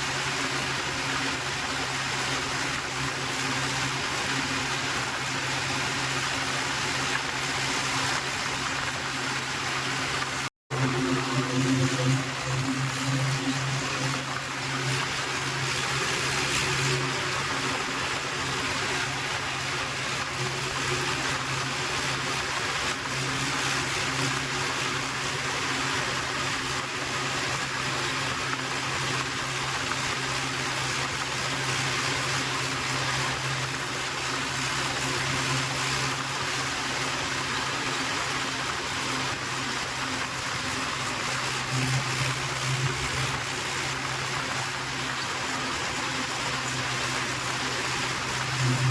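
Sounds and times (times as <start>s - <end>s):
steady rushing noise: 0.0s - 48.9s.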